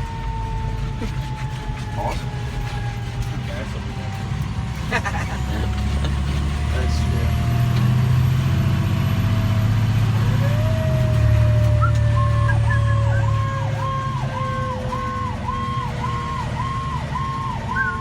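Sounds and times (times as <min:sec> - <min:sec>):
fire engine running: 0:00.0 - 0:18.0
mechanical siren winding down: 0:00.0 - 0:18.0
electronic siren warbling: 0:10.2 - 0:18.0.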